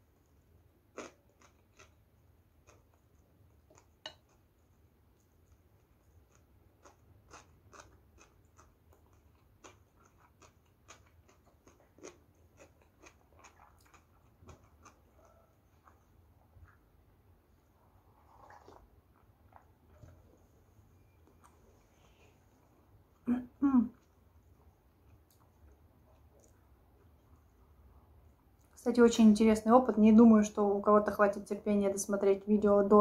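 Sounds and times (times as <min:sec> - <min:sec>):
close-up chewing with mouth clicks: 0:00.9 - 0:17.1.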